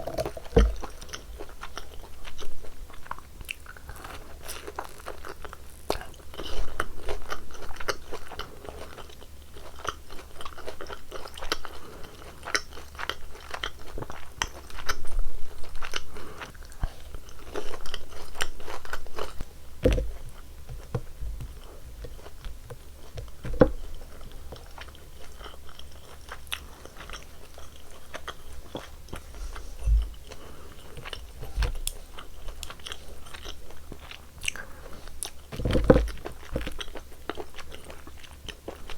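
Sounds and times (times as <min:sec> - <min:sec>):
crunchy chewing: 0:00.0 - 0:38.9
soft low thuds: 0:19.8 - 0:22.6, 0:29.2 - 0:30.3.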